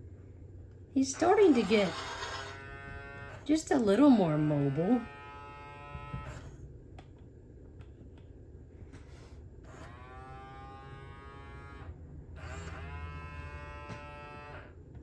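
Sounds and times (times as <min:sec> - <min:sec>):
toy motors buzzing: 0:01.0 - 0:03.6, 0:09.7 - 0:14.7
electronic dinosaur calls: 0:01.2 - 0:02.5.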